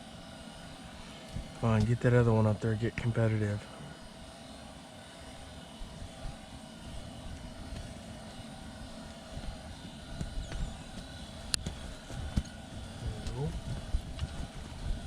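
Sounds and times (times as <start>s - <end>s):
faint steady hum: 0.0s - 15.0s
strong wind buffeting shelter: 5.0s - 15.0s.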